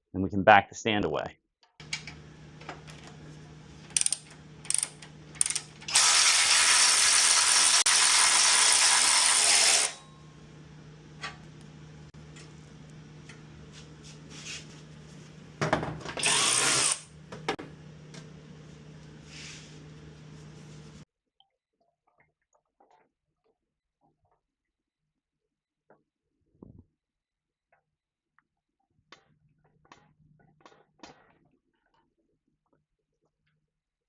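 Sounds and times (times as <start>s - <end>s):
ratchet wrench clicking: 3.9s - 10.0s.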